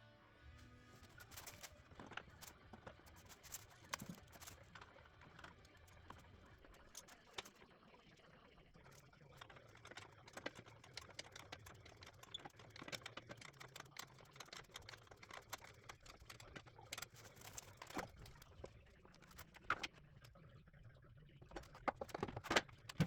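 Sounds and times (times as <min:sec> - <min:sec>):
small hard parts clicking: 0:08.8 - 0:20.0.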